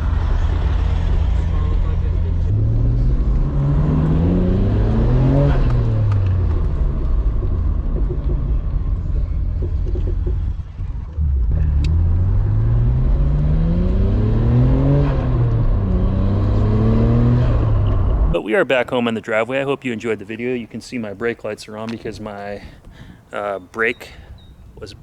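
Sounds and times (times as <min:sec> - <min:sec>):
car engine accelerating through gears: 0:00.0 - 0:18.4.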